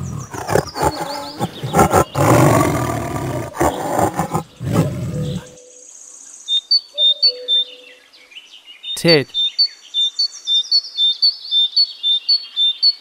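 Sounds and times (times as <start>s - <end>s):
tiger roaring: 0.0s - 5.6s.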